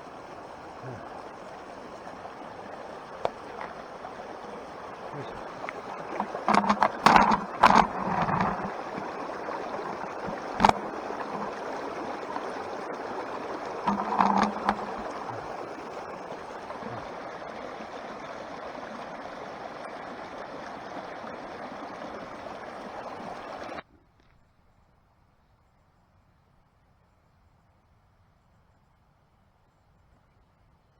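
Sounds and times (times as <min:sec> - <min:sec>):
mountain stream flowing: 0:00.0 - 0:23.8
brief voice: 0:00.8 - 0:01.0.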